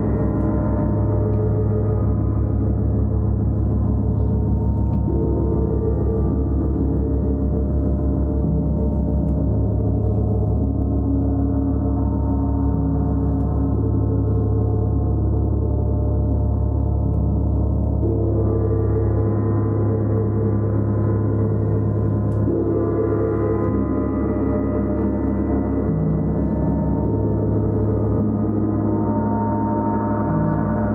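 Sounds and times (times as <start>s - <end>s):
gong sustained tones: 0.0s - 30.9s.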